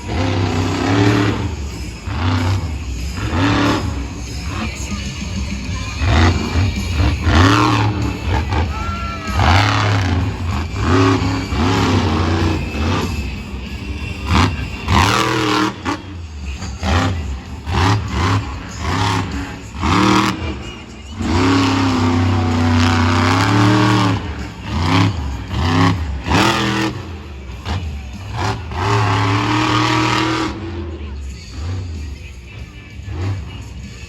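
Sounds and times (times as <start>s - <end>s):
truck engine revving: 0.0s - 34.0s.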